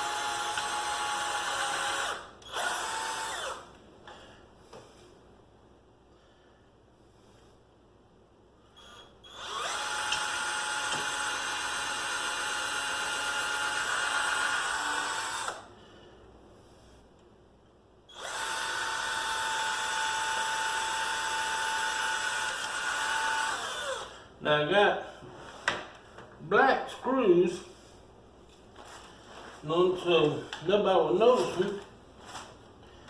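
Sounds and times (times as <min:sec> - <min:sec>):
cordless drill motor whine: 0:00.0 - 0:03.7, 0:08.8 - 0:15.7, 0:18.1 - 0:24.2.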